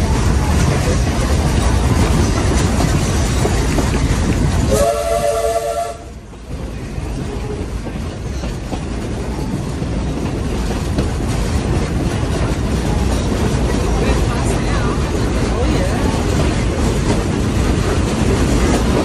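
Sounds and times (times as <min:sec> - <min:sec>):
steam train rumbling on rails: 0:00.0 - 0:19.0
steam whistle blast: 0:04.7 - 0:06.1.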